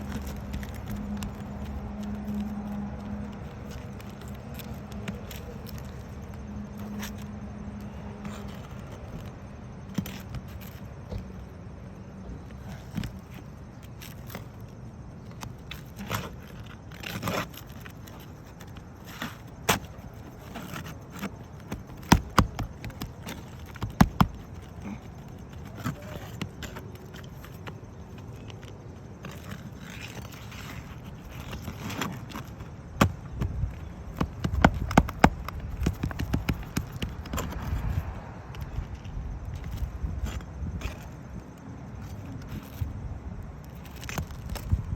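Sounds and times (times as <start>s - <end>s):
tool knocking and scraping shingles: 15.7s - 27.8s, 29.2s - 38.0s.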